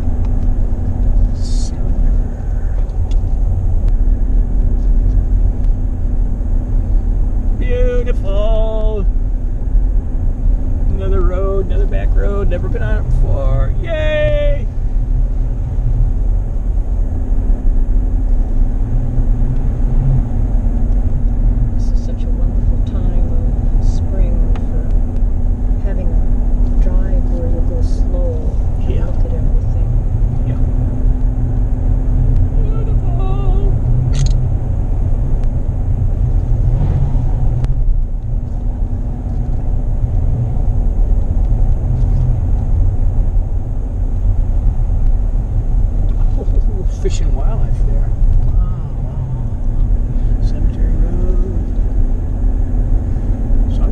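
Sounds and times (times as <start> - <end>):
car engine drone: 0.0 - 53.9
road rumble inside car: 0.0 - 53.9.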